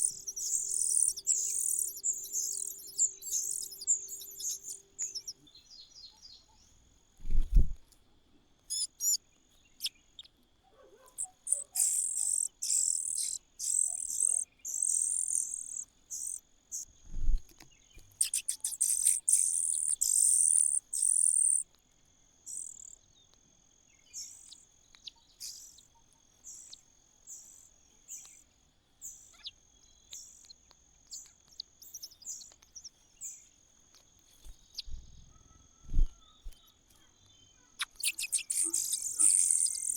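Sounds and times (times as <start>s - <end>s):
high insect drone: 0.0s - 5.6s, 38.1s - 39.9s
nestlings cheeping: 0.0s - 5.6s, 8.7s - 9.2s, 11.1s - 16.4s, 18.1s - 21.6s, 22.5s - 23.0s, 34.4s - 39.9s.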